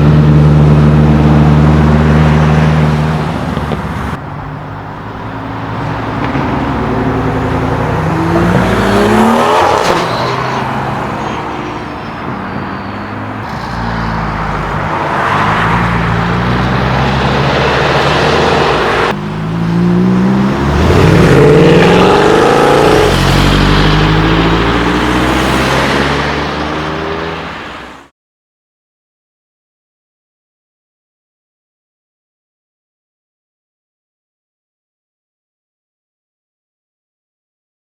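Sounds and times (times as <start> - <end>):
cars accelerating and revving: 0.0 - 28.1.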